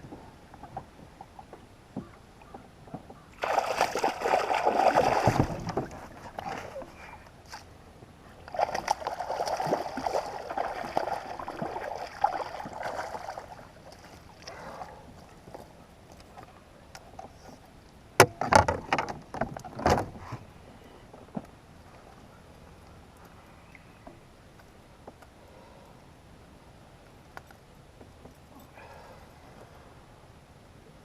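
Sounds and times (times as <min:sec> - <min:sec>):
water sloshing and splashing: 0:03.2 - 0:07.7, 0:08.4 - 0:16.5.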